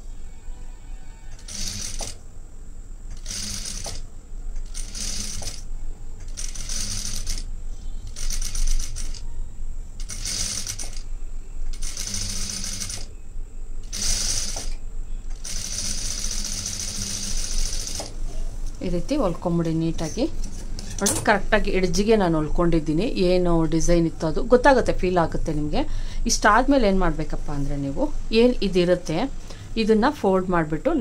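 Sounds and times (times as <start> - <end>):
sewing machine stitching: 1.3 - 2.2, 3.1 - 4.0, 4.6 - 5.6, 6.3 - 7.4, 8.2 - 9.2, 10.0 - 11.0, 11.7 - 13.1, 13.9 - 18.1.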